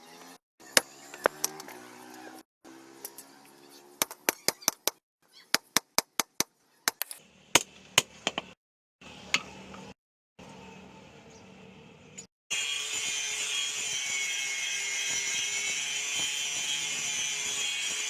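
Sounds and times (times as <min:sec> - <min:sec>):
rapid sharp taps: 0:07.6 - 0:08.6.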